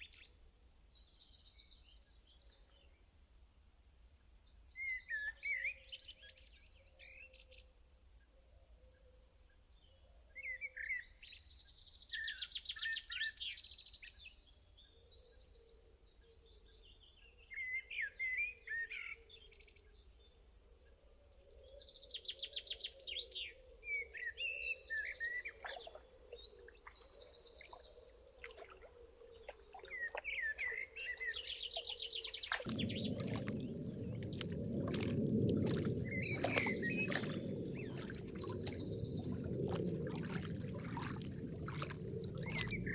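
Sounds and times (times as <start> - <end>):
songbirds singing: 21.4 - 42.9
running water rushing: 25.6 - 30.8, 31.7 - 42.9.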